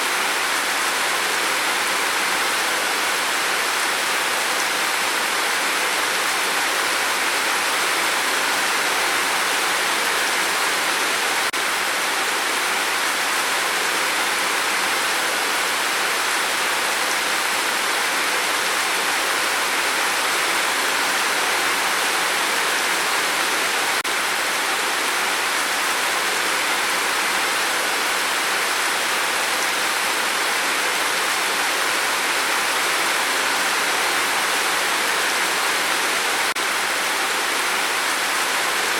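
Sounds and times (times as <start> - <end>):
heavy rain on a tin roof: 0.0 - 38.9.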